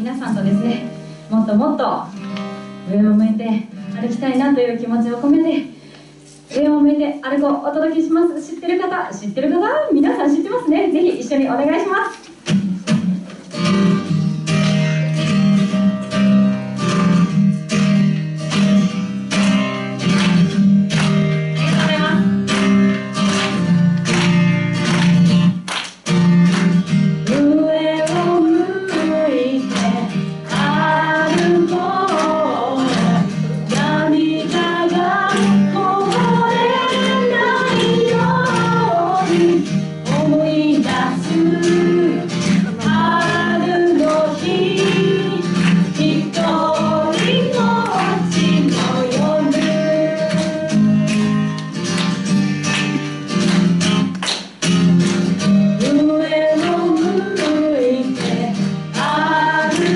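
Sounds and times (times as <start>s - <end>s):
acoustic guitar strumming: 0.0s - 4.2s, 12.3s - 59.9s
woman singing: 21.6s - 22.3s, 27.2s - 51.5s, 55.8s - 59.9s.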